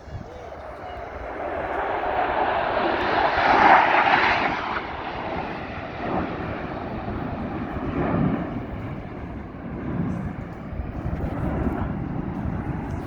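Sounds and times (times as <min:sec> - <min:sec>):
airplane engine roar: 0:00.0 - 0:13.0.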